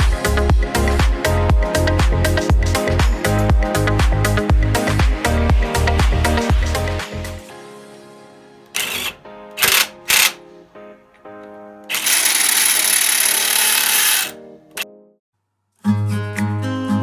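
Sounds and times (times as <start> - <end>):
background music: 0.0 - 15.1
impact wrench running: 8.8 - 10.4, 11.9 - 14.4.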